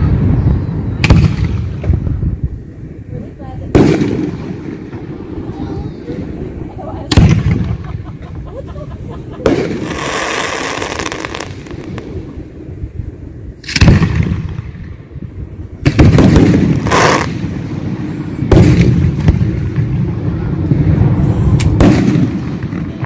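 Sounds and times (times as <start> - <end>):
firework shells booming: 1.0 - 2.3, 3.7 - 6.3, 7.0 - 12.6, 13.6 - 15.1, 15.8 - 23.0.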